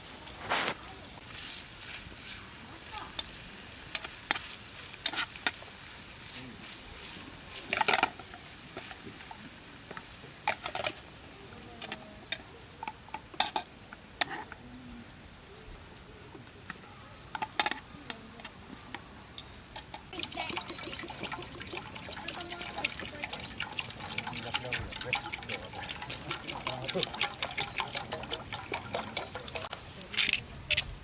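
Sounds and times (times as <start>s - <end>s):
cookware and utensils clinking: 7.5s - 14.6s, 19.4s - 30.9s.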